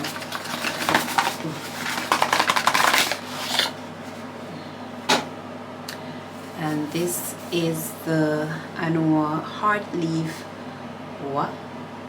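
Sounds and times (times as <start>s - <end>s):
packaging rustling and clicking: 0.0s - 4.2s
extractor fan humming: 0.0s - 12.0s.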